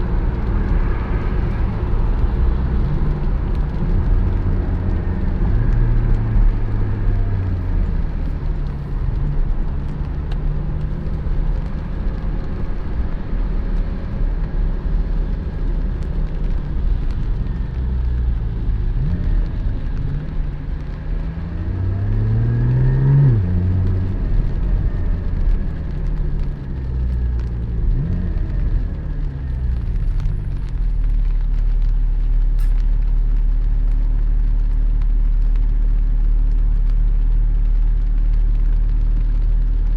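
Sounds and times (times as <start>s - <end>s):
low road rumble: 0.0s - 39.9s
car engine revving: 16.4s - 33.0s.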